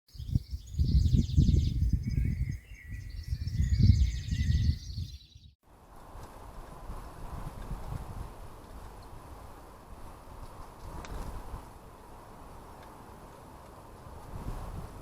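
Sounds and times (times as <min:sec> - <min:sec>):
small birds trilling: 0:00.1 - 0:05.6.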